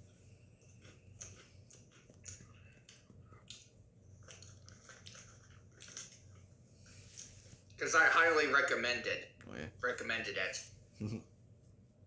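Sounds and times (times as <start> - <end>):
chewing crunchy snacks: 0.5 - 6.6.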